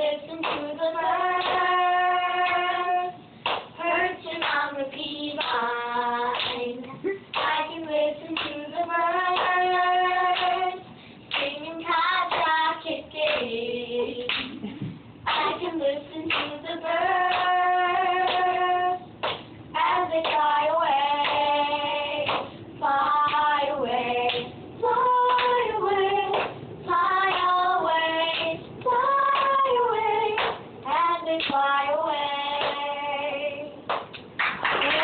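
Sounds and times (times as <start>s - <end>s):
children singing: 26.9s - 32.6s.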